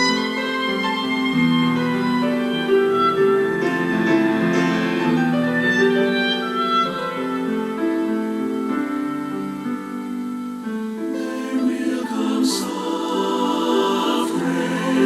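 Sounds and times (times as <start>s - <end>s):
piano: 0.0s - 15.0s
choir singing held chords: 11.0s - 15.0s.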